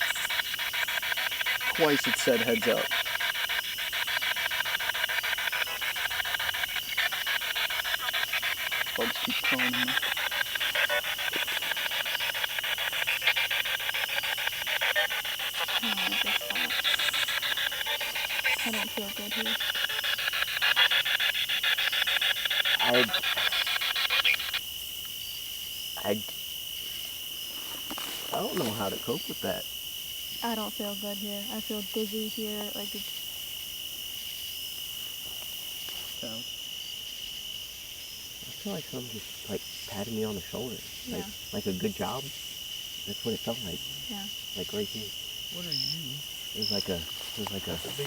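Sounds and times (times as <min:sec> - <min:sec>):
radio sweeping choppy static: 0:00.0 - 0:03.6, 0:04.2 - 0:24.6
high insect chirr: 0:00.0 - 0:48.0.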